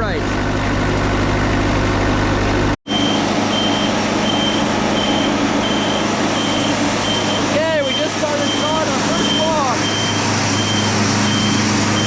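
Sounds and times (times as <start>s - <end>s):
sawmill engine running: 0.1s - 12.0s
high electronic beep: 2.9s - 12.0s.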